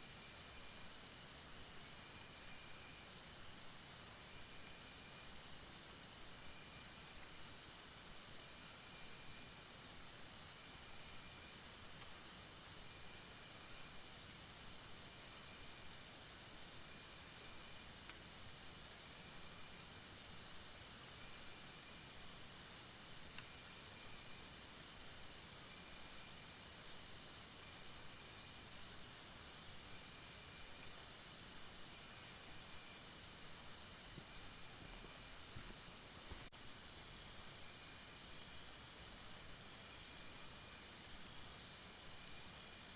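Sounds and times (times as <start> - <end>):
crickets trilling: 23.6 - 42.9.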